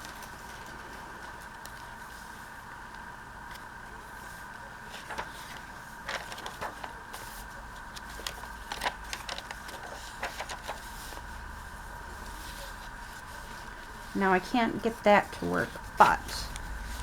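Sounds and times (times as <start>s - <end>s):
faint two-tone hum: 0.0s - 17.0s
paper handled with taps and rustles: 3.5s - 11.4s.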